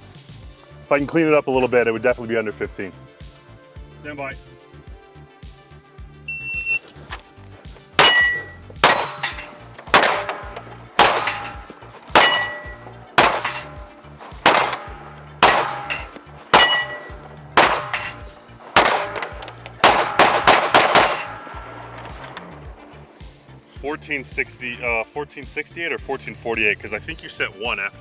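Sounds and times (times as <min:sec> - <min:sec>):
steel plate ringing: 0:08.0 - 0:23.2
gunshots: 0:08.0 - 0:23.5.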